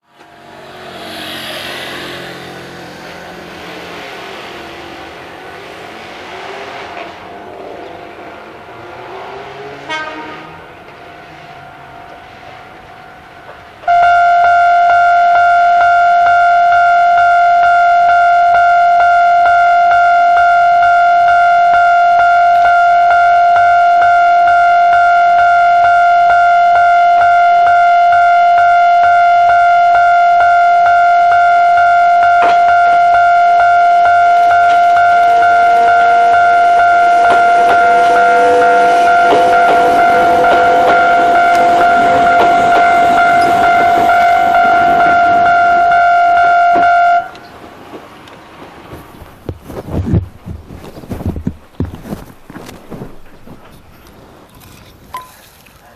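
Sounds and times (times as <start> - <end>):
approaching train whine: 0.0 - 48.9
level crossing warning alarm: 11.1 - 47.5.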